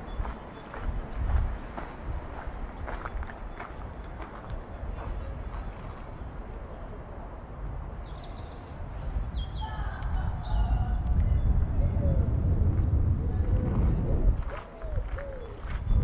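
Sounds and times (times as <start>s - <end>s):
small birds chirping: 0.0s - 7.3s, 8.0s - 12.4s
low outdoor rumble: 0.0s - 16.0s.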